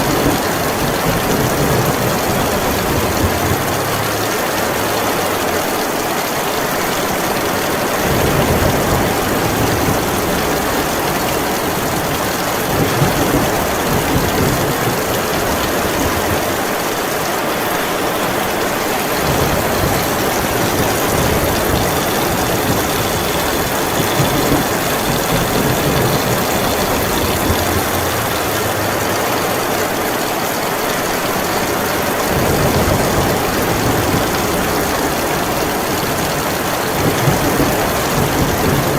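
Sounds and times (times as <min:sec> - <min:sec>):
heavy rain falling: 0:00.0 - 0:38.9
low thunder rumbling: 0:19.0 - 0:30.2.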